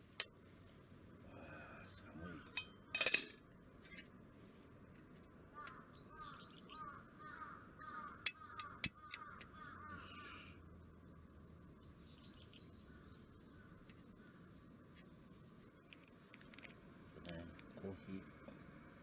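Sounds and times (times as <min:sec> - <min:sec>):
crow cawing: 0:05.5 - 0:10.6.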